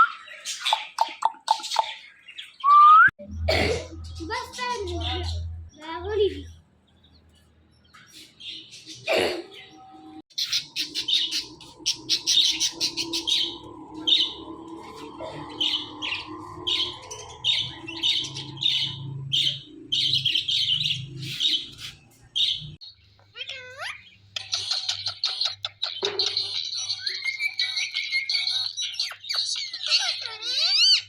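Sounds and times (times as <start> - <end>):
parakeet chirping: 10.3 - 31.0.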